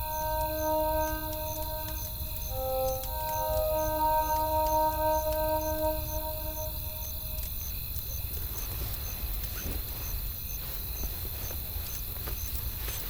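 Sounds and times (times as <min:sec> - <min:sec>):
music: 0:00.0 - 0:07.5.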